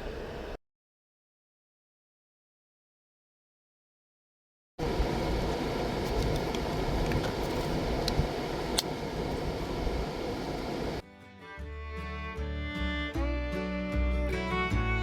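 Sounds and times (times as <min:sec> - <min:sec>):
steady rumbling noise: 0:04.8 - 0:11.0
fiddle and guitar music: 0:11.0 - 0:15.0.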